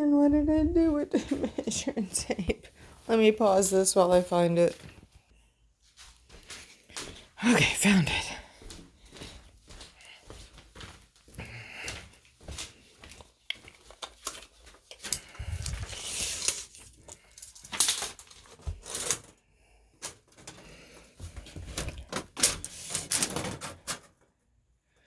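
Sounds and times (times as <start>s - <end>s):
rustling scrapes: 15.4s - 19.4s, 20.0s - 24.1s.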